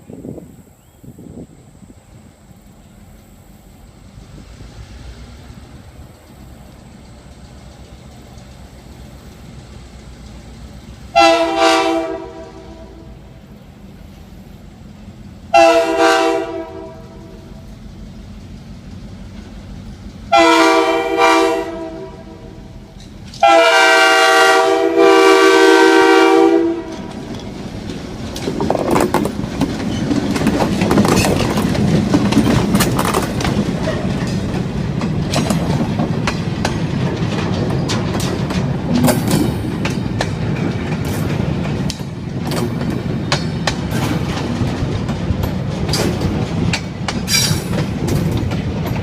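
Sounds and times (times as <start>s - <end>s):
train wheels clicking on rails: 1.3s - 49.0s
train horn blasts: 11.1s - 13.3s, 15.5s - 17.6s, 20.3s - 22.8s, 23.4s - 27.3s.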